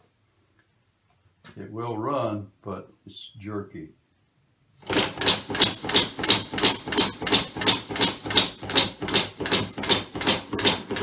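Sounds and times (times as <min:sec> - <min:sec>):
compressed-air engine hissing puffs: 0:04.8 - 0:11.0.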